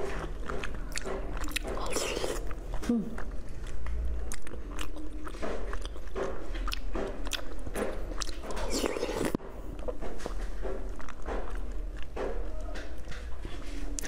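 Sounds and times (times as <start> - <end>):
wet sticky chewing: 0.0 - 9.9.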